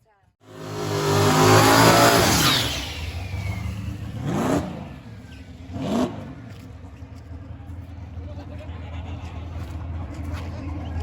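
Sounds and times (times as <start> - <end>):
drag racing cars accelerating: 0.5 - 11.0.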